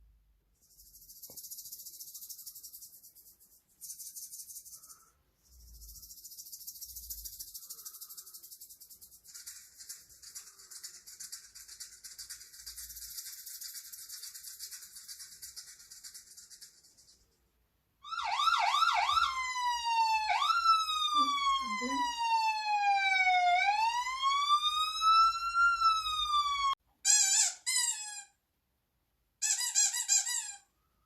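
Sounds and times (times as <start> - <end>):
police siren: 18.0 - 26.8.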